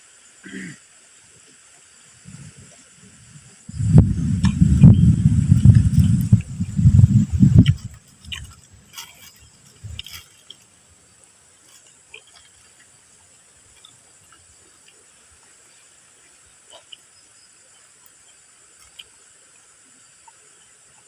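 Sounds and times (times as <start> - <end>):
loud low rumble: 3.7 - 7.9.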